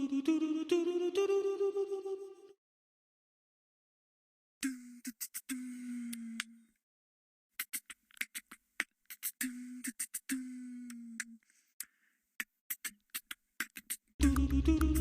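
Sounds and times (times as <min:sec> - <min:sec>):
layered a cappella vocals: 0:00.0 - 0:02.6, 0:14.2 - 0:15.0
mouth clicks and pops: 0:04.6 - 0:06.6, 0:07.6 - 0:15.0
person humming short notes: 0:04.6 - 0:06.7, 0:09.2 - 0:11.4, 0:13.6 - 0:15.0.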